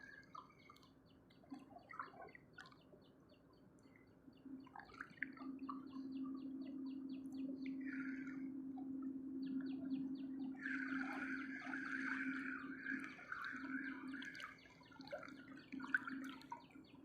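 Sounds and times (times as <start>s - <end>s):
low hum: 4.5s - 17.0s.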